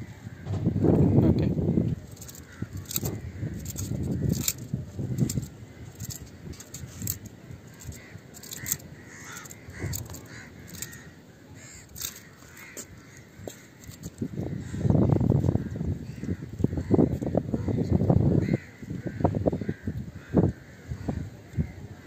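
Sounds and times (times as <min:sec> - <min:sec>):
small clicks: 0:02.1 - 0:11.1, 0:11.8 - 0:12.6
bird harsh calls: 0:02.1 - 0:15.0.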